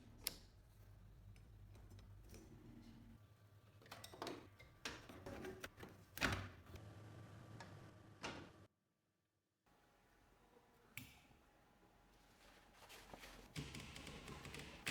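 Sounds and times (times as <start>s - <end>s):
typewriter clicks and knocks: 13.6s - 14.9s.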